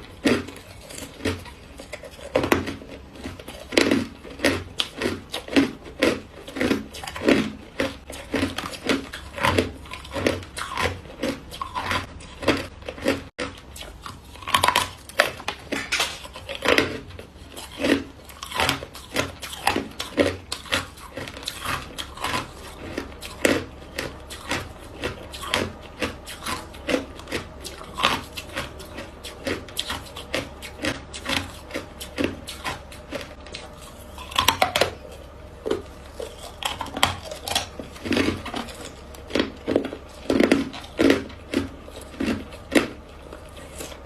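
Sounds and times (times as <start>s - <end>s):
ice block being chewed: 0.0s - 44.0s.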